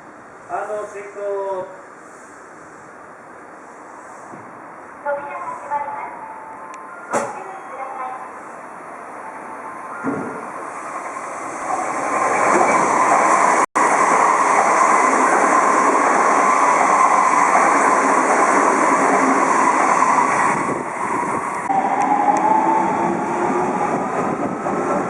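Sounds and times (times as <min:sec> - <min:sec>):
electric train running on track: 0:06.2 - 0:25.0.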